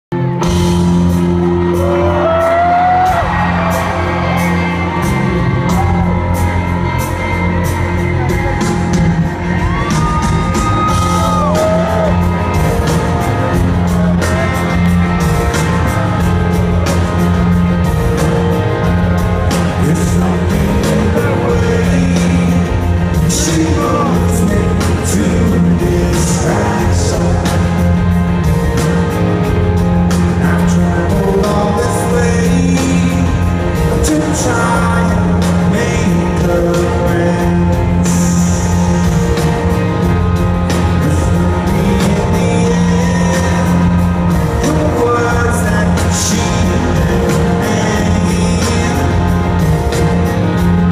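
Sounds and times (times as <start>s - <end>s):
crowd cheering: 1.0s - 21.6s
crowd whistling: 8.1s - 13.1s.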